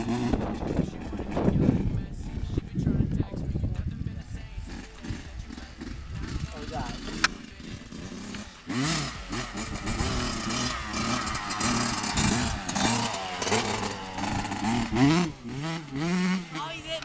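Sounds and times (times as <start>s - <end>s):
dirt bike engine revving: 0.0s - 3.0s, 4.0s - 17.0s.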